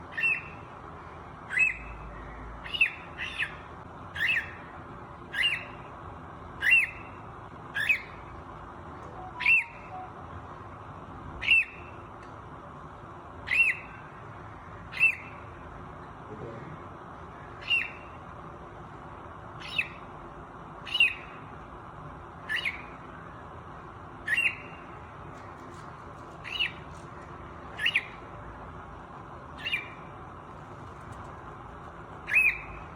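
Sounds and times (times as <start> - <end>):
cockatiel squawking: 9.2 - 9.9.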